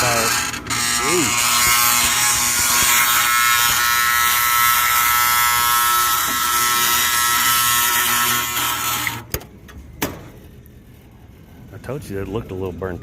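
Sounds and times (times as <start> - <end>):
blower motor electrical buzz: 0.0 - 9.4.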